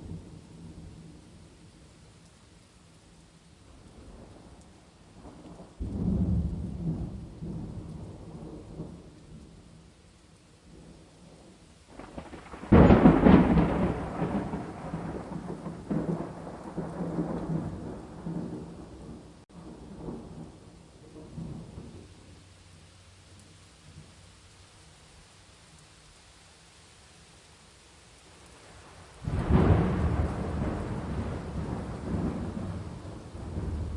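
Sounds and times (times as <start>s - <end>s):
steady rain: 0.0s - 33.9s
thunder rumbling: 5.2s - 9.5s, 10.7s - 22.1s, 28.6s - 33.9s.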